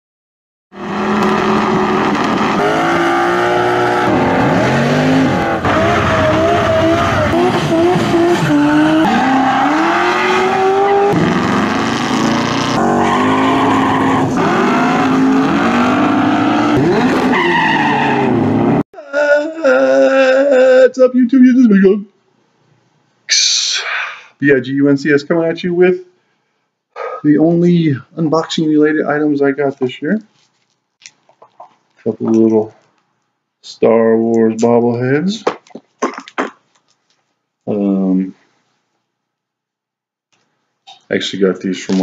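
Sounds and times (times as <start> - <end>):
car engines: 0.8 - 18.8
tires squealing: 0.8 - 18.8.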